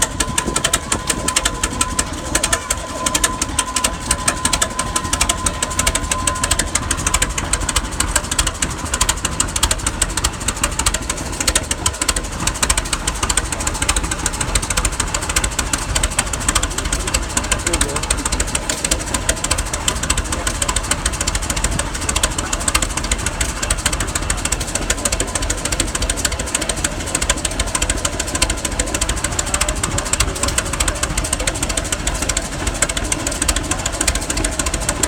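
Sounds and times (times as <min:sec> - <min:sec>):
thin high whine: 0:00.0 - 0:09.6
tractor engine running: 0:00.0 - 0:35.0.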